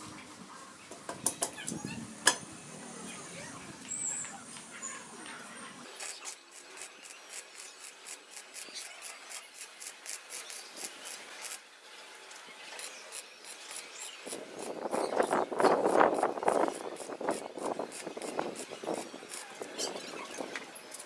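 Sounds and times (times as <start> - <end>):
arc welding crackling: 5.8 - 21.0.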